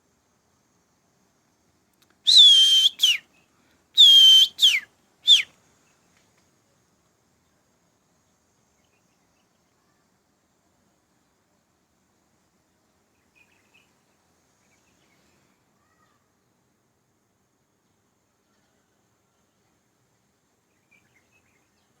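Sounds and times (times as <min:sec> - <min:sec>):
bird whistled call: 0:02.3 - 0:03.2, 0:04.0 - 0:05.5.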